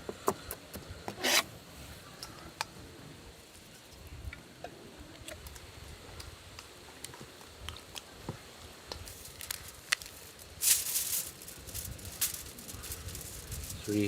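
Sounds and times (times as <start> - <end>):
rasping scrape: 1.1 - 1.5.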